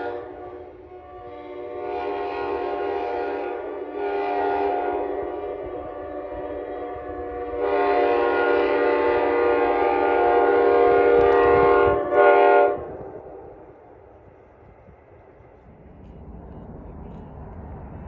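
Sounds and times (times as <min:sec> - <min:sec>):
locomotive air horn blasts: 0:00.0 - 0:13.2
low rumble: 0:15.4 - 0:18.0.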